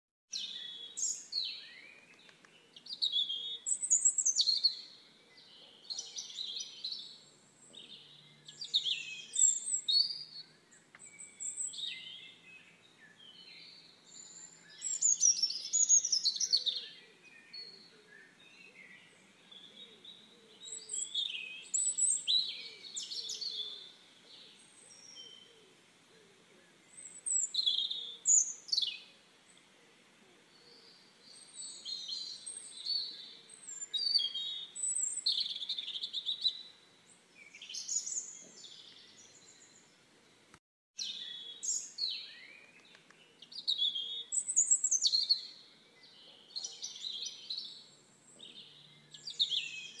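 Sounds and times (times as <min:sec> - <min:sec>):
songbirds singing: 0:00.3 - 0:50.0.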